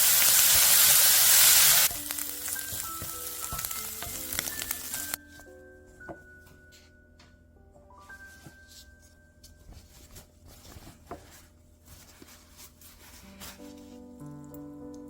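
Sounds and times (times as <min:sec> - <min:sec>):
food sizzling in a pan: 0:00.0 - 0:05.2
music of short picked notes: 0:01.8 - 0:10.2.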